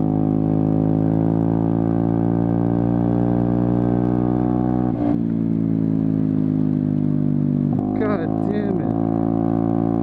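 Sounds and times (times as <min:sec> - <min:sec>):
scooter engine running: 0:05.2 - 0:10.0.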